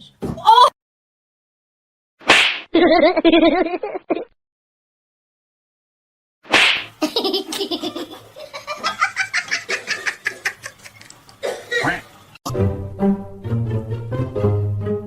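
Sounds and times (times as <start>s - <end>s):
child laughing: 2.8s - 4.3s, 7.0s - 11.1s
music with plucked low strings: 12.5s - 15.0s.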